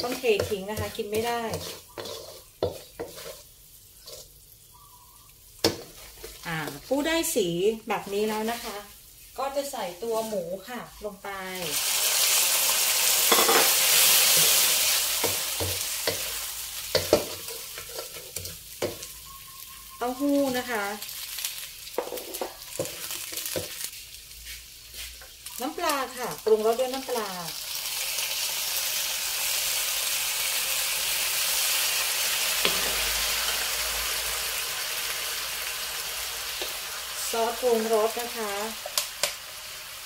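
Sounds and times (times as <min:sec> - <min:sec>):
meat sizzling in a wok: 0:00.0 - 0:40.0
spatula knocking against wok: 0:16.9 - 0:18.2.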